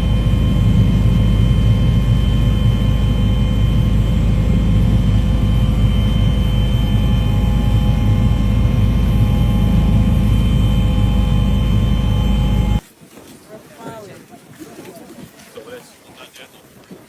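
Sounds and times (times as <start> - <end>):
aircraft engine drone: 0.0 - 12.8
thin whining tones: 0.0 - 12.8.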